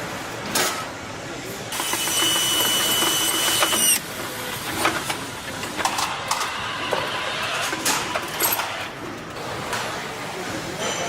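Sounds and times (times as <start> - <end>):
machinery humming: 1.0 - 10.8
high-pitched machine whine: 1.8 - 8.8
tools and parts clanking: 1.8 - 9.8.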